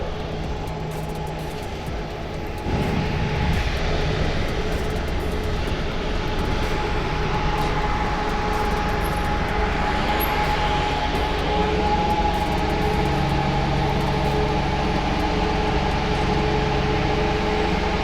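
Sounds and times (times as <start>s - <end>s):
steady hum: 0.0s - 18.0s
wind and road noise: 0.0s - 18.0s.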